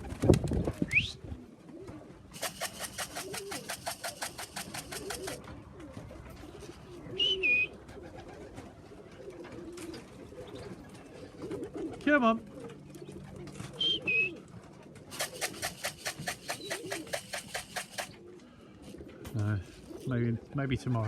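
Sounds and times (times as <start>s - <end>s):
pigeons cooing: 0.0s - 21.0s
rapid even rattle: 2.3s - 5.4s, 15.1s - 18.2s.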